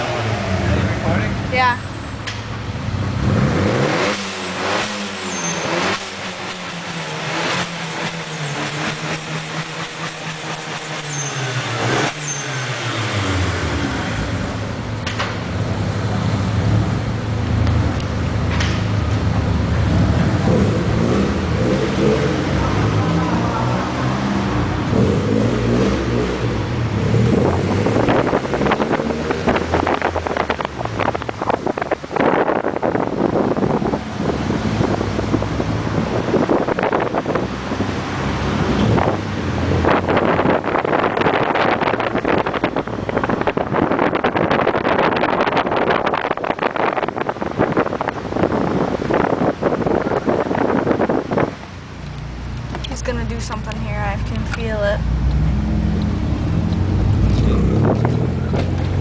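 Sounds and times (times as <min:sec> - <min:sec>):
car engine revving: 0:02.4 - 0:59.0.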